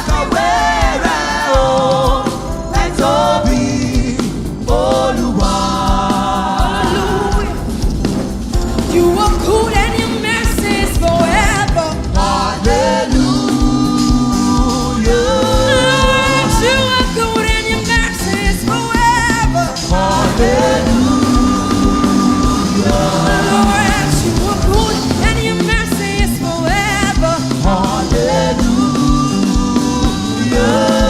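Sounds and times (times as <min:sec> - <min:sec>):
band with steady beat: 0:00.0 - 0:31.0
singers with backing vocals: 0:00.0 - 0:31.0.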